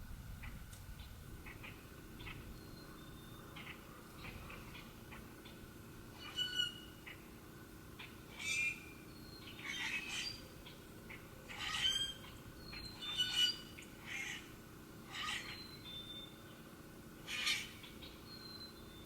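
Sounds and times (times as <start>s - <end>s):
bird squawking: 6.2s - 7.2s, 8.0s - 8.8s, 9.5s - 10.4s, 11.1s - 16.1s, 17.2s - 18.7s.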